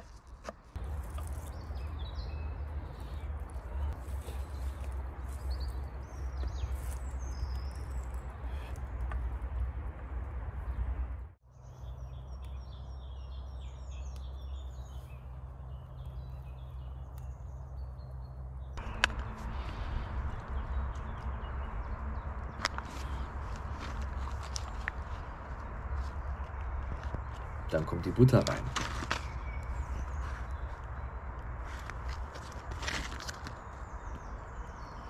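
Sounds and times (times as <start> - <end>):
small birds chirping: 0.7 - 35.0
steady low rumble: 13.0 - 27.7.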